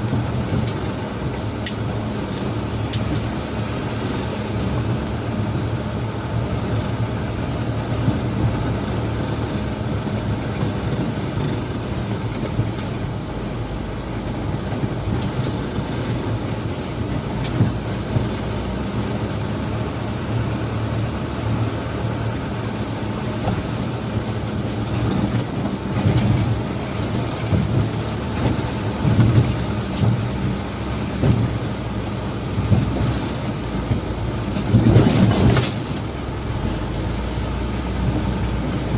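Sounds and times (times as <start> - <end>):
diesel truck engine running: 0.0 - 38.9
thumps and rattles: 24.5 - 30.6, 32.6 - 36.8.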